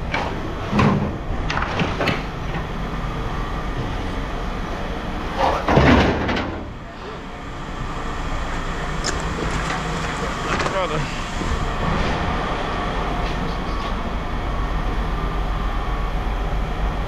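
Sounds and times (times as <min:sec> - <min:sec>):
low engine rumble: 0:00.0 - 0:17.0
knocks and clatters: 0:00.1 - 0:02.7, 0:05.4 - 0:06.7.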